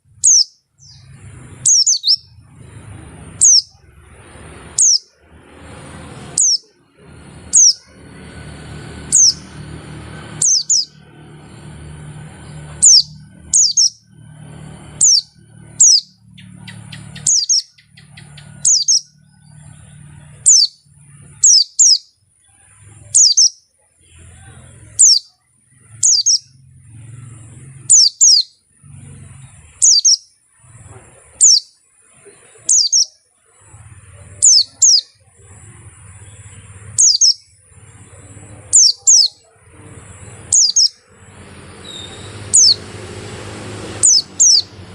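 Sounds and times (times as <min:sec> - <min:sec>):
bird call sweeping downward: 0:00.2 - 0:02.3, 0:03.4 - 0:03.8, 0:04.8 - 0:05.2, 0:06.4 - 0:06.8, 0:07.5 - 0:07.9, 0:10.4 - 0:11.0, 0:12.8 - 0:14.1, 0:15.0 - 0:19.2, 0:20.4 - 0:20.8, 0:23.1 - 0:23.6, 0:26.0 - 0:26.6, 0:29.8 - 0:30.3, 0:31.4 - 0:31.7, 0:32.6 - 0:33.2, 0:34.4 - 0:35.1, 0:37.0 - 0:37.4, 0:40.5 - 0:41.1, 0:41.8 - 0:42.9, 0:43.9 - 0:44.8.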